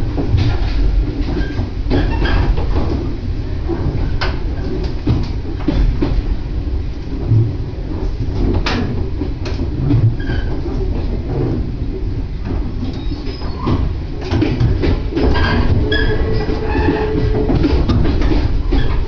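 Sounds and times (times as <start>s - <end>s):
train wheels rumbling on track: 0.0s - 19.0s
sharp clicks and knocks: 7.3s - 11.6s, 12.4s - 19.0s.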